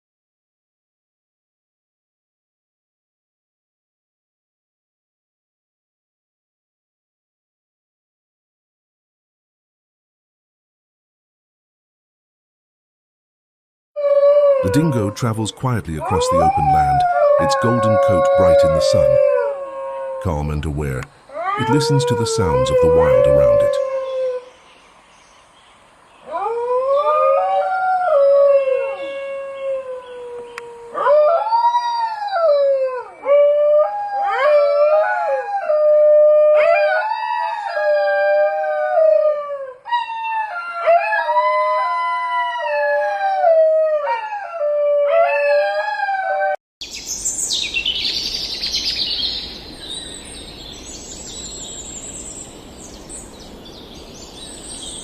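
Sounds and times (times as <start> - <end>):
dingo howling: 14.0 - 24.5, 26.3 - 46.6
birds chirping: 14.7 - 26.8, 46.8 - 55.0
steady outdoor hiss: 14.7 - 32.3, 46.8 - 55.0.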